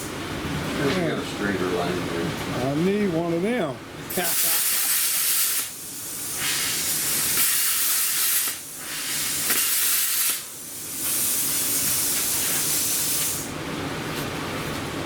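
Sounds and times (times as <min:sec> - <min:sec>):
loud hissing: 0:04.1 - 0:13.5.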